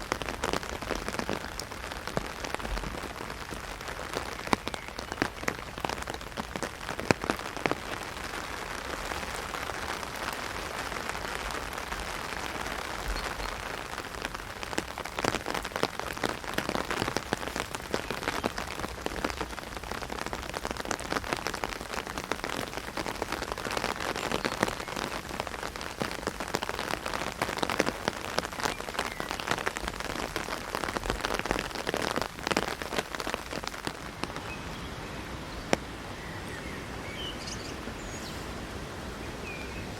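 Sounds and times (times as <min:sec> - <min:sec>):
heavy rain on an umbrella: 0:00.0 - 0:39.9.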